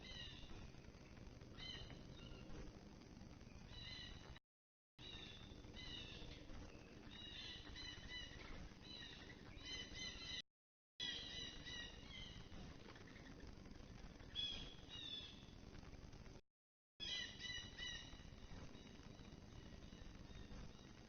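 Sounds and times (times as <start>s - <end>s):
low background hiss: 0.0s - 4.4s, 17.0s - 21.0s
songbirds chirping: 0.0s - 4.4s, 5.0s - 10.4s, 11.0s - 15.7s, 17.0s - 21.0s.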